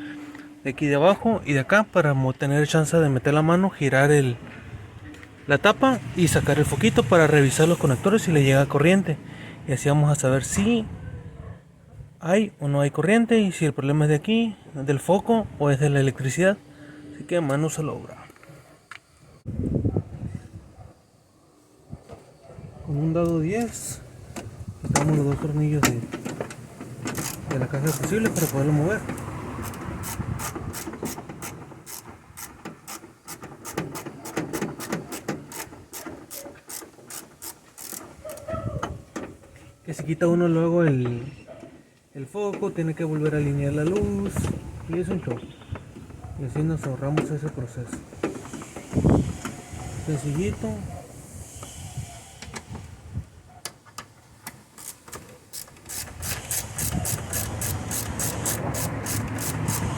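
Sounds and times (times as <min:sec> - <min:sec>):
ratchet wrench clicking: 0:27.2 - 0:28.7, 0:29.6 - 0:38.5, 0:54.8 - 0:59.9.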